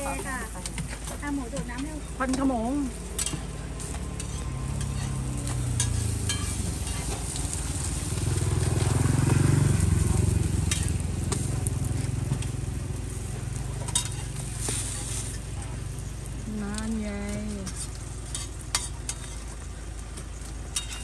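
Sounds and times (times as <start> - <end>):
roti sizzling on griddle: 0.0 - 21.0
metal spatula clicks and scrapes: 0.5 - 7.6, 10.6 - 12.6, 13.8 - 15.5, 17.6 - 19.6, 20.7 - 21.0.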